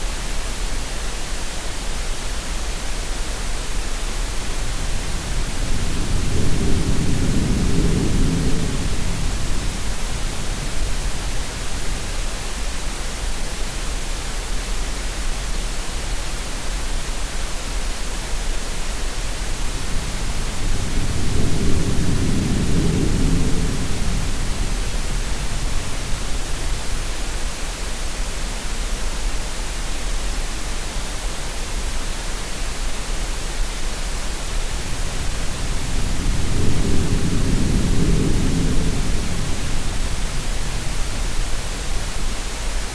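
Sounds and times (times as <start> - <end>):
steady noise hiss: 0.0 - 42.9
low ocean wave surges: 33.9 - 42.9.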